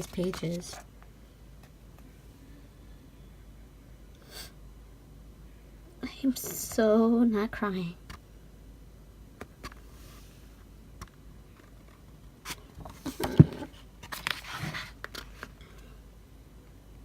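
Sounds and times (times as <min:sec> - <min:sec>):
paper rustling: 0:00.0 - 0:00.8, 0:12.9 - 0:15.5.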